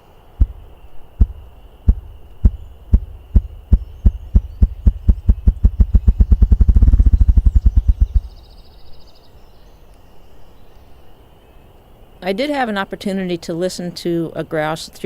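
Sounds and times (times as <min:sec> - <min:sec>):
grouse wingbeat drumming: 0:00.4 - 0:08.5.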